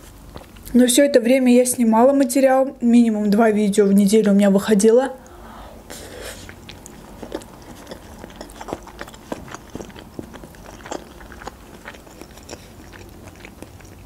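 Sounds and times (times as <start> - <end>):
chewing food: 0.0 - 0.8, 6.3 - 14.0
mouth clicks and smacks: 6.4 - 14.0.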